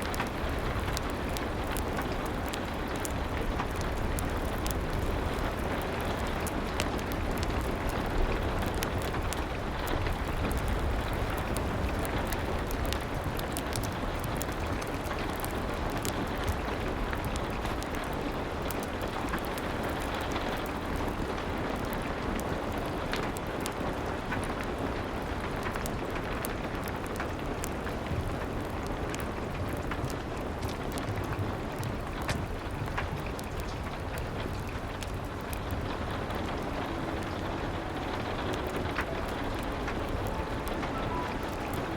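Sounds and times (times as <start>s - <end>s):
crackling fireplace: 0.0s - 41.9s
rain against a window: 0.0s - 41.9s.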